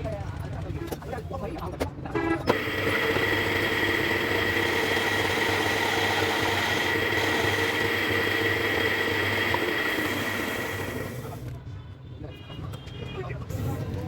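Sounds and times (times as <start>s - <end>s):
lathe high whine: 2.5s - 11.4s
machine hum: 2.5s - 11.4s.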